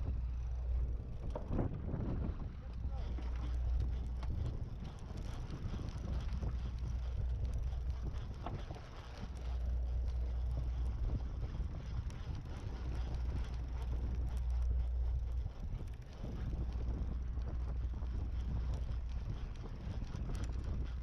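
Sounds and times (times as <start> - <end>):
fishing boat background noise: 0.0 - 21.0
wind rumble on microphone: 0.0 - 21.0.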